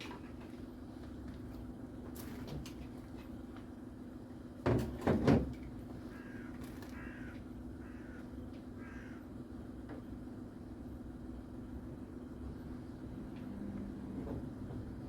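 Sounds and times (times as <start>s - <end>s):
distant crows cawing: 6.0s - 9.4s.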